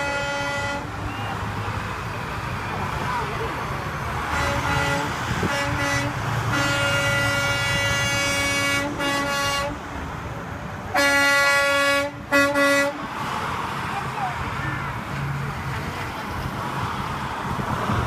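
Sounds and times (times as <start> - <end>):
truck air horns blasting: 0.0 - 1.3, 4.2 - 9.8, 10.9 - 13.1
passing traffic rumble: 0.0 - 18.0.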